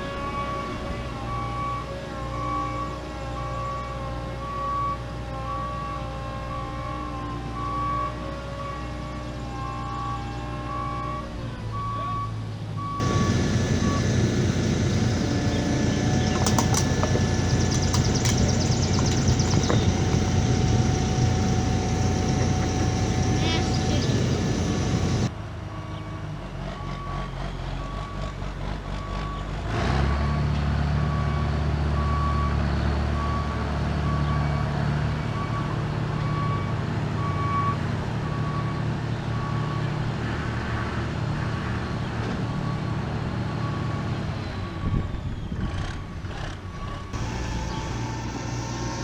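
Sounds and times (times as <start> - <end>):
backup alarm beeping: 12.8 - 25.3, 47.2 - 49.0
diesel engine running: 13.0 - 25.3, 46.2 - 49.0.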